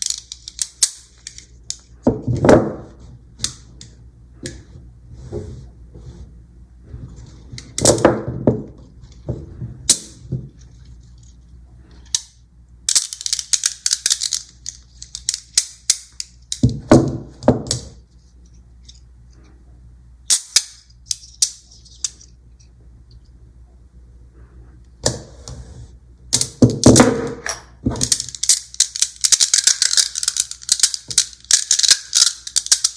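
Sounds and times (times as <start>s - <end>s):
magnetic balls clicking together: 28.0s - 32.9s.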